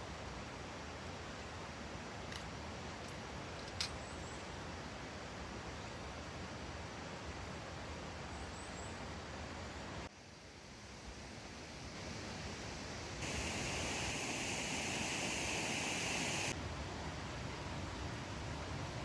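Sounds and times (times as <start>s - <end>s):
outdoor rushing ambience: 13.2s - 16.6s.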